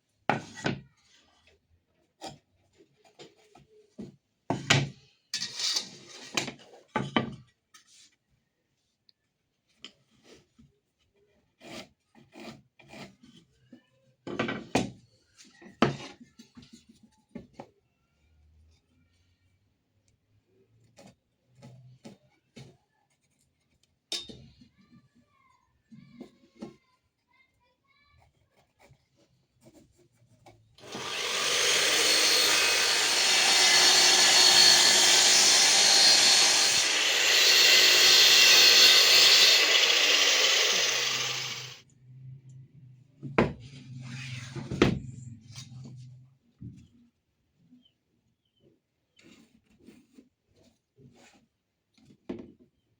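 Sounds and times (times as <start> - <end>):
woodworking power tool running: 30.8 - 41.8.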